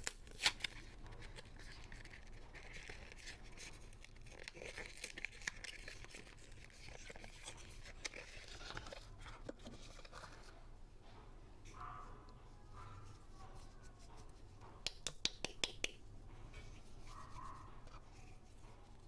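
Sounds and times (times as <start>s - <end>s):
packaging tearing and crinkling: 0.0s - 2.0s, 4.0s - 9.1s.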